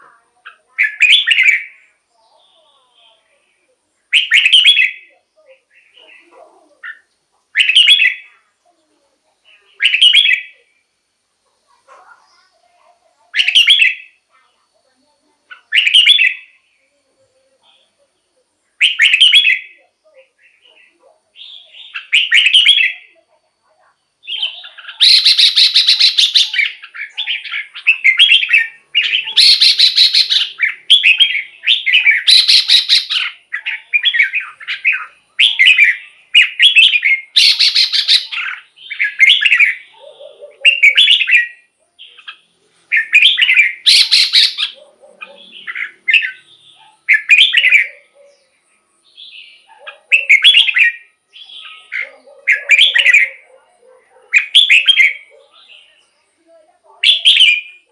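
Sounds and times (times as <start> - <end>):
bulbul singing fluty phrases: 0.0 - 57.9
raspy bird notes: 24.3 - 39.9.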